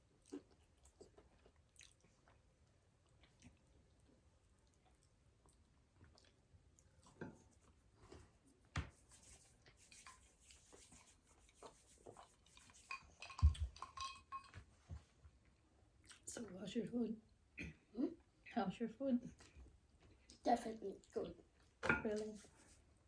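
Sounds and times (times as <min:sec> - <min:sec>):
chewing: 0:00.0 - 0:07.8, 0:09.6 - 0:14.6, 0:16.0 - 0:16.4
cutlery clinking against dishes: 0:12.7 - 0:14.6, 0:21.8 - 0:22.2.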